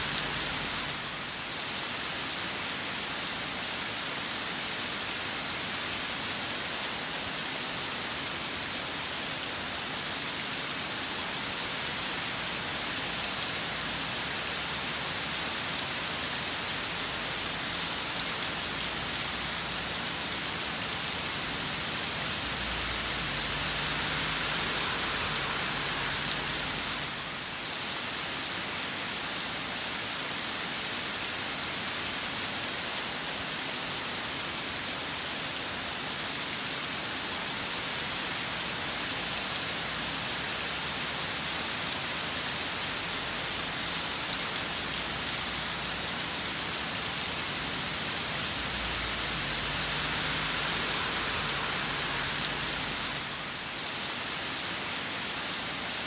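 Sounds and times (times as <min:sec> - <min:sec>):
rain pattering: 0:11.4 - 0:28.2, 0:37.4 - 0:55.3.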